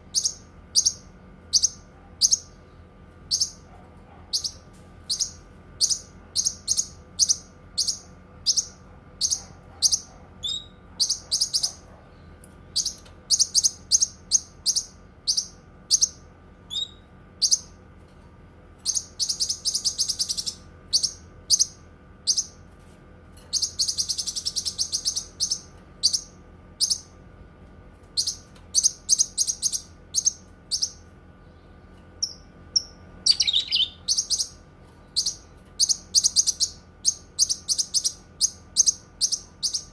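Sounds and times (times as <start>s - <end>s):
bird singing sharp high notes: 33.3s - 34.5s.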